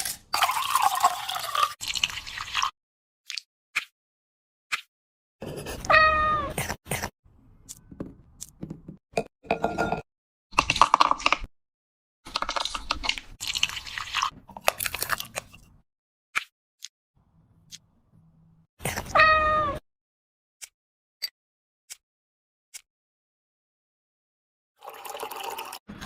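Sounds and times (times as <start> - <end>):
cat meowing: 5.8 - 6.6, 19.1 - 19.8.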